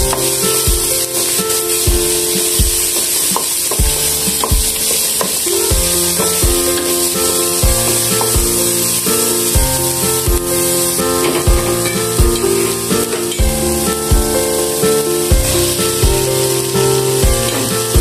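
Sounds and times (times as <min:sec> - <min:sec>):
background music with steady beat: 0:00.0 - 0:18.0
onion and garlic sizzling in pan: 0:00.0 - 0:18.0.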